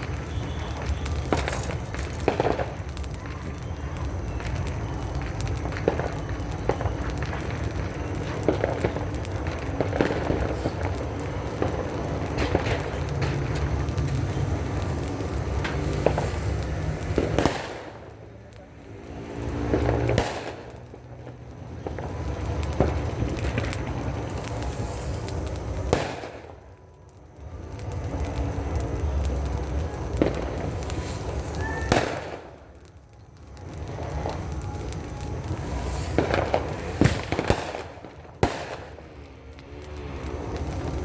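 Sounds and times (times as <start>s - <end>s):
sharp firework bangs: 0.0s - 3.3s, 4.2s - 18.2s, 19.1s - 21.0s, 21.8s - 26.6s, 30.2s - 32.7s, 35.5s - 39.2s
firecrackers crackling: 0.0s - 41.0s.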